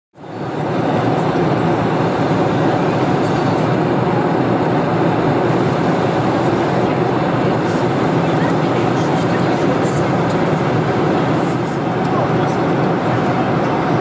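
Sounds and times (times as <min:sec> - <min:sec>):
airplane cabin roar: 0:00.2 - 0:14.0.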